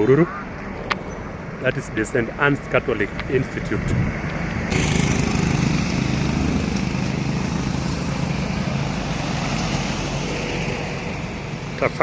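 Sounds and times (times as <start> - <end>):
road noise: 0.0 - 12.0
vehicle engine running: 4.6 - 11.7.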